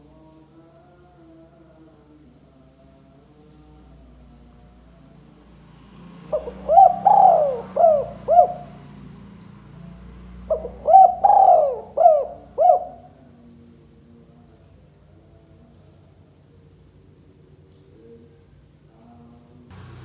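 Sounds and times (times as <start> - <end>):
dove cooing: 6.3 - 8.8, 10.5 - 13.2.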